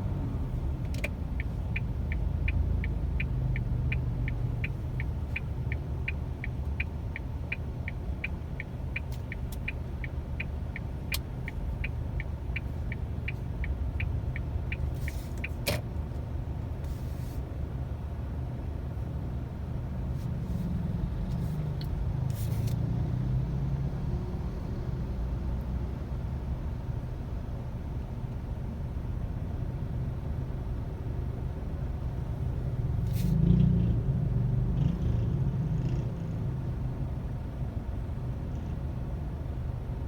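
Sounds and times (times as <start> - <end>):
turn signal ticking: 0.0 - 16.0
car engine and road rumble: 0.0 - 40.0.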